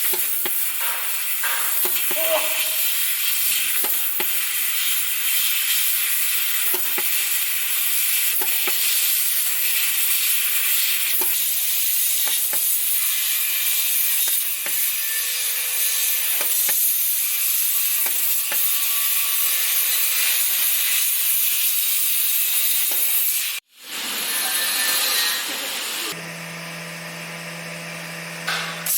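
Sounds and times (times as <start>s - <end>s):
laser cutter gas hiss: 0.0s - 14.9s.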